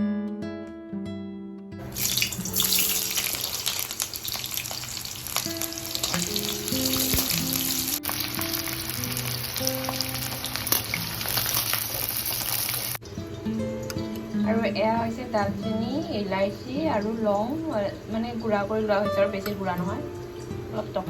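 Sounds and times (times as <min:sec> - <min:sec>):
stirring in a pan: 0:01.8 - 0:13.0
food sizzling in oil: 0:01.8 - 0:14.5
soft background music: 0:05.4 - 0:12.1, 0:13.0 - 0:21.0.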